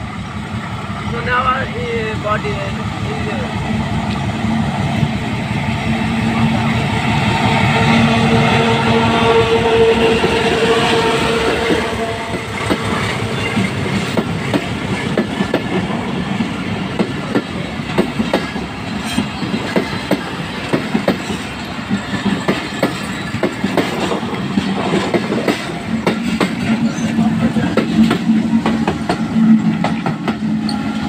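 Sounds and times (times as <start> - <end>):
train wheels clattering: 10.0 - 31.0.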